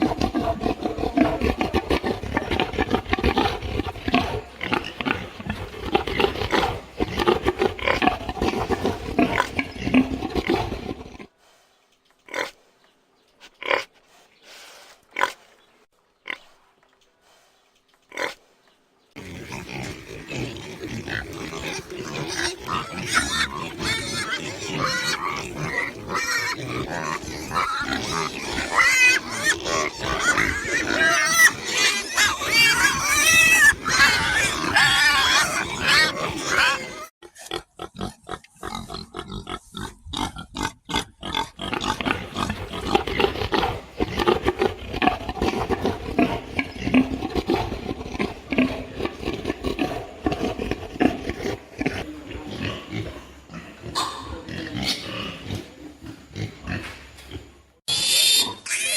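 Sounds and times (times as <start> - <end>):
pigs grunting and squealing: 0.0 - 11.3, 19.2 - 58.9.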